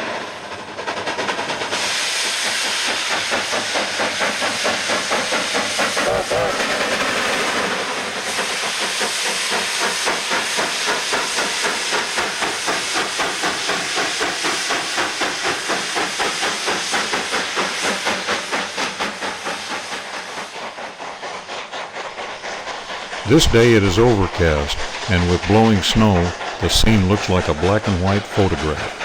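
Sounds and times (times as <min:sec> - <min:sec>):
steam locomotive exhaust chuffing: 0:00.0 - 0:29.0.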